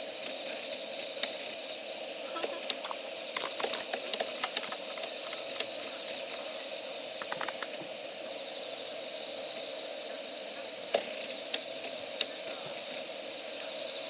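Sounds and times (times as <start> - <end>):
fire hiss: 0.0 - 14.0
wood fire crackling and popping: 1.0 - 8.0, 10.5 - 13.2.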